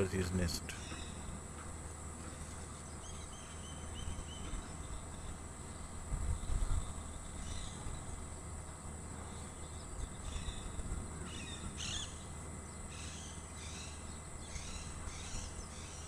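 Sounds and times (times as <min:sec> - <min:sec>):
insect drone: 0:00.0 - 0:16.0
small birds chirping: 0:00.0 - 0:16.0.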